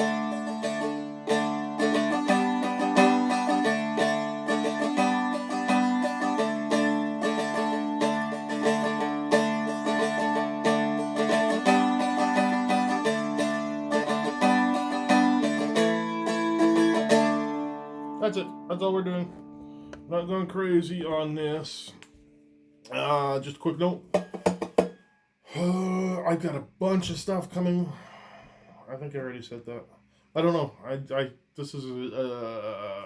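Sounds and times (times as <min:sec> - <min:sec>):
dulcimer picked melody: 0:00.0 - 0:21.6.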